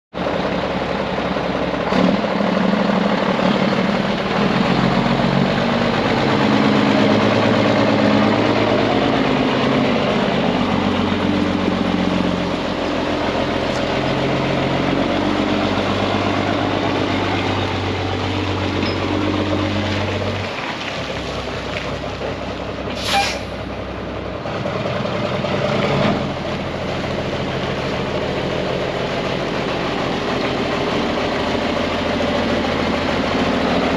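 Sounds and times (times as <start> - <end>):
truck diesel engine running: 0.1 - 33.9
air hiss: 23.0 - 23.5.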